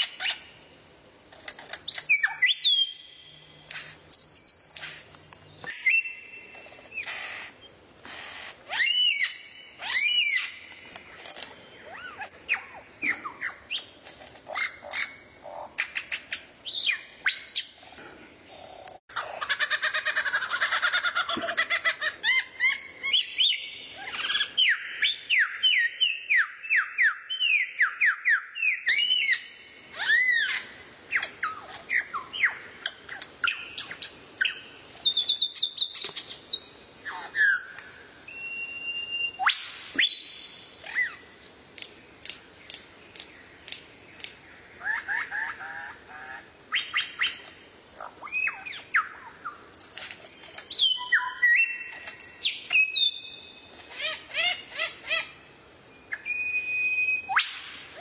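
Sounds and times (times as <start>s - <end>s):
songbird singing: 0.0s - 7.9s, 8.5s - 19.6s, 20.9s - 58.0s.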